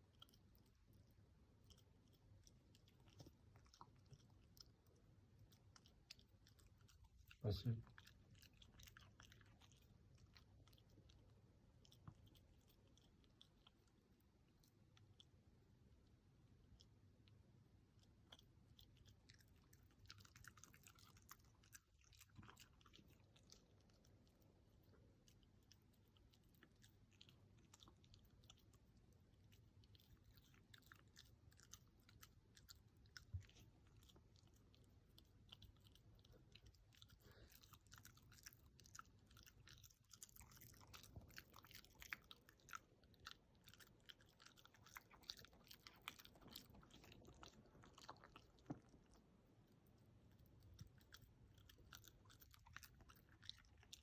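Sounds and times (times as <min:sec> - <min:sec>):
dog crunching food: 0:00.0 - 0:15.3, 0:17.9 - 0:54.0.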